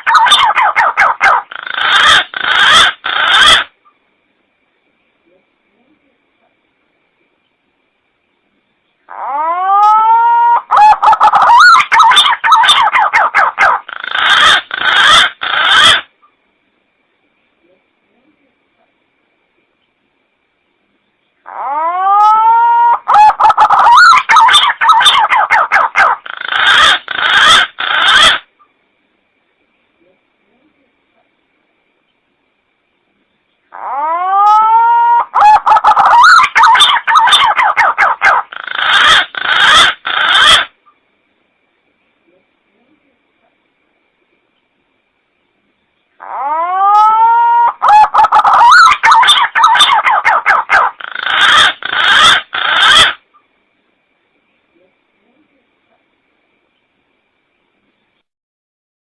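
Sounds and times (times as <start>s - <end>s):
wavering whistled bird call: 21.5s - 28.5s, 33.8s - 40.7s, 46.2s - 53.2s.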